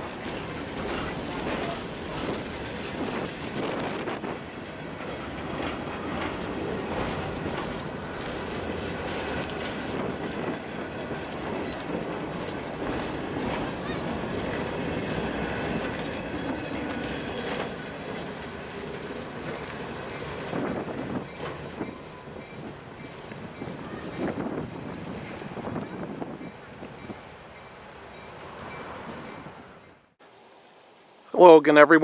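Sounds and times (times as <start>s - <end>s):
wheels clicking over rail joints: 0.0s - 30.0s
thin wheel squeal: 21.2s - 24.5s, 25.4s - 30.0s.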